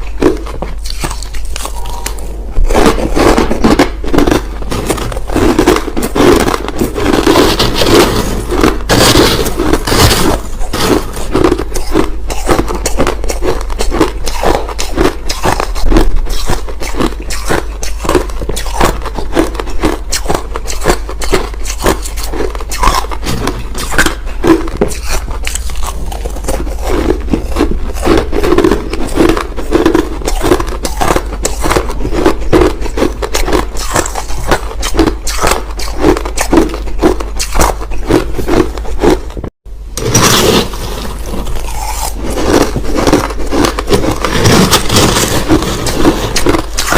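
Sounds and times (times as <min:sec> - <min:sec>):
crushed ice crunching: 0:00.1 - 0:39.2, 0:40.0 - 0:46.9.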